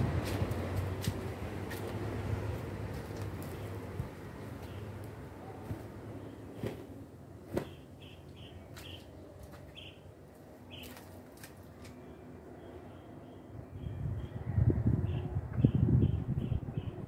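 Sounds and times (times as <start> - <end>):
bird chirping: 7.6 - 9.1, 9.7 - 10.0.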